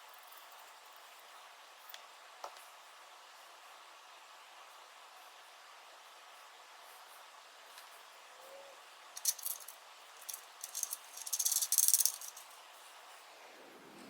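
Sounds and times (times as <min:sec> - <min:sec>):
small hard parts rattling: 0:09.2 - 0:12.6.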